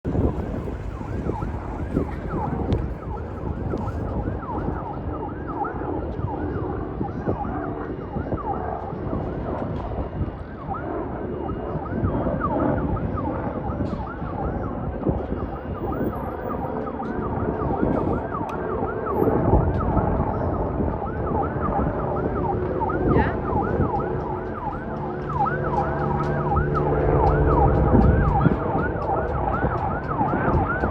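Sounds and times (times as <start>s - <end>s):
police siren yelping: 0.1s - 30.9s.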